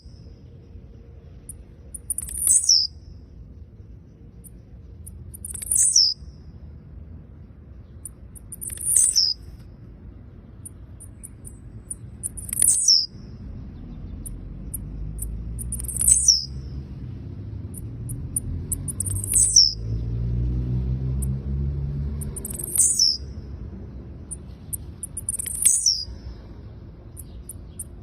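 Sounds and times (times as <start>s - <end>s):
low background rumble: 0.0s - 28.0s
bird high descending calls: 2.0s - 3.0s, 5.3s - 6.2s, 8.0s - 9.5s, 12.2s - 13.2s, 14.1s - 16.6s, 18.1s - 20.1s.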